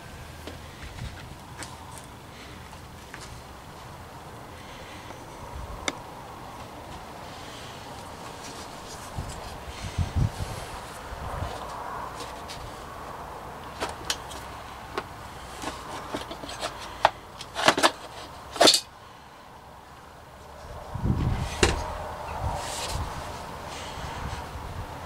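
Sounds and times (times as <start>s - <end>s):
hard objects clicking and knocking: 13.7s - 18.9s
objects clattering: 13.7s - 18.9s.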